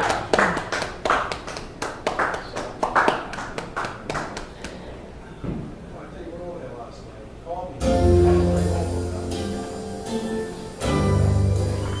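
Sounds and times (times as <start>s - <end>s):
people clapping: 0.0s - 4.9s.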